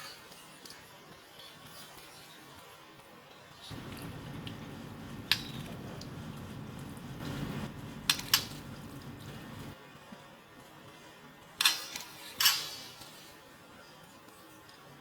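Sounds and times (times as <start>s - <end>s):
bird splashing water: 3.7s - 9.8s.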